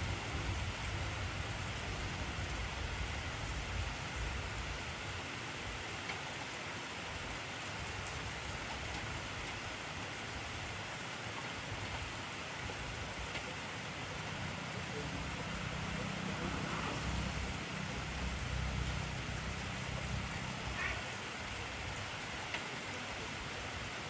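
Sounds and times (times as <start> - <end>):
heavy rain: 0.0 - 24.0
raindrop clicks: 22.3 - 22.7.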